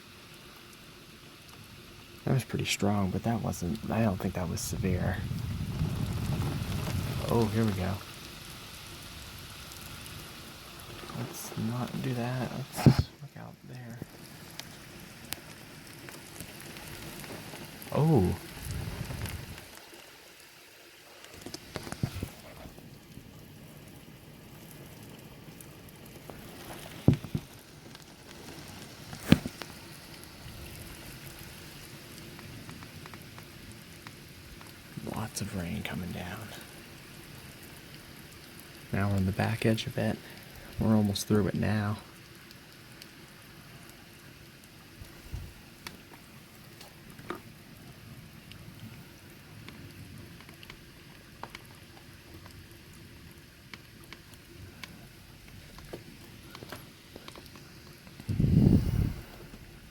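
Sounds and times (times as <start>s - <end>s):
heavy rain falling: 2.3s - 42.5s.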